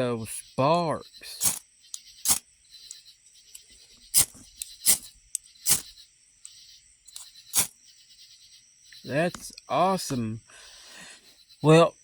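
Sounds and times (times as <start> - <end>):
crickets chirring: 0.0 - 12.0
ferro rod scraped with striker: 1.4 - 3.0, 4.1 - 5.9, 6.5 - 7.7.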